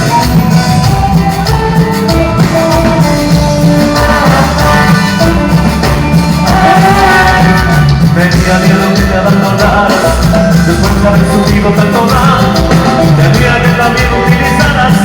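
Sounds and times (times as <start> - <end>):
melody line: 0.0 - 9.0
drums: 0.0 - 15.0
live band playing latin music: 0.0 - 15.0
steady bass: 0.0 - 15.0.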